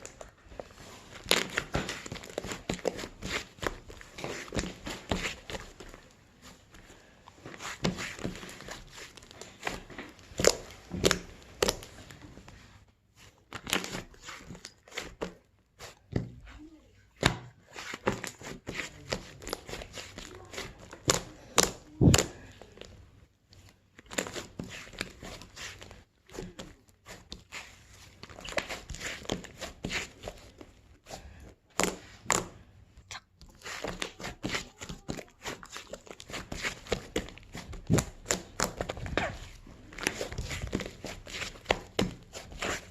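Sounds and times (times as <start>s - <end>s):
slime crinkly crackles: 0.0s - 12.6s, 33.5s - 42.9s
slime squishing: 0.0s - 42.9s.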